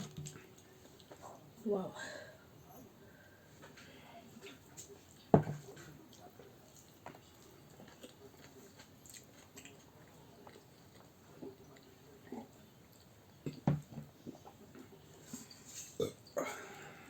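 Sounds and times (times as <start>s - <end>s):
chewing and mouth sounds: 0.0s - 1.4s, 4.4s - 16.4s.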